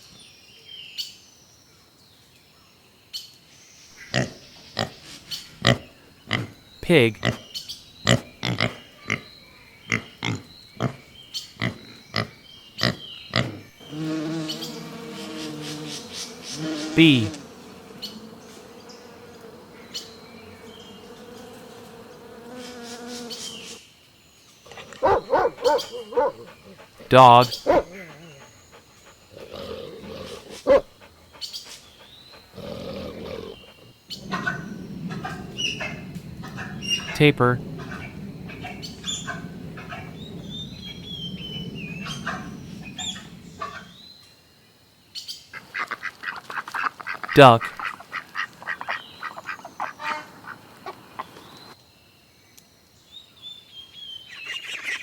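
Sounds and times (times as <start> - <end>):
bee buzzing: 13.4 - 23.8, 33.0 - 44.0
dog barking: 24.7 - 26.8, 27.4 - 28.4, 30.2 - 30.9
tapir whistling squeals: 34.1 - 44.0
low background rumble: 34.2 - 44.0.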